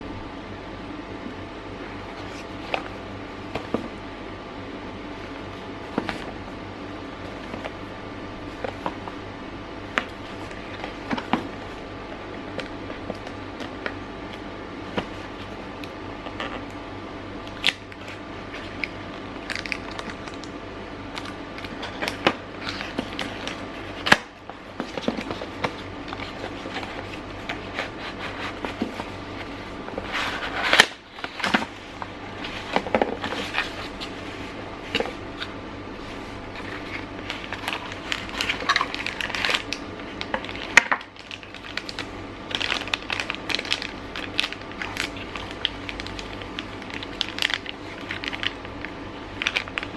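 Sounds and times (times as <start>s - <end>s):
faint steady hum: 0.0s - 49.9s
packaging crinkling and rustling: 17.4s - 49.9s.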